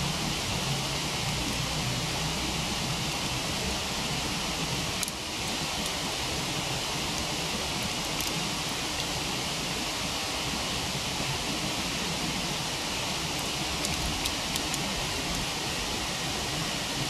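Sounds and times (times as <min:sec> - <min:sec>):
waterfall rushing: 0:00.0 - 0:17.0
wood fire crackles: 0:02.4 - 0:17.0.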